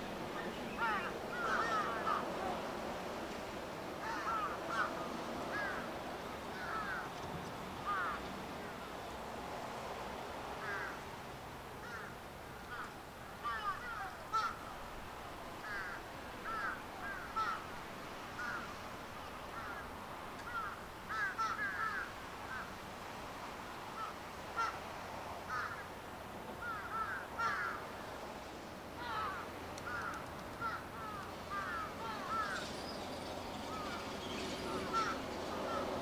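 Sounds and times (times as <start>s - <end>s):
birds calling: 0.0s - 2.8s, 4.0s - 8.9s, 15.6s - 17.8s, 18.4s - 22.7s, 26.6s - 28.2s, 29.0s - 36.0s
faint hiss: 0.0s - 36.0s.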